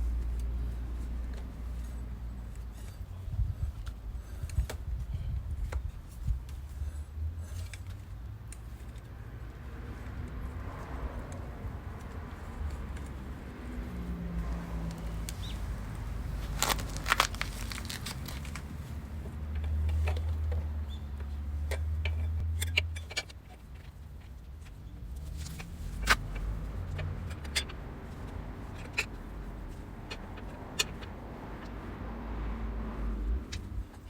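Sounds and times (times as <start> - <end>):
low vehicle rumble: 0.0 - 34.0.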